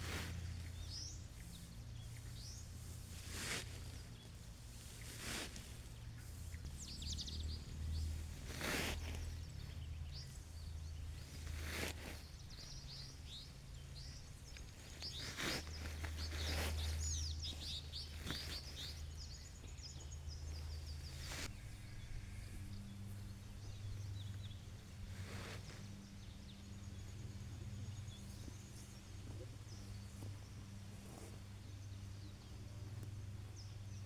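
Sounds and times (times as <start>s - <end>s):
low steady hum: 0.0s - 15.1s
small birds chirping: 0.0s - 34.0s.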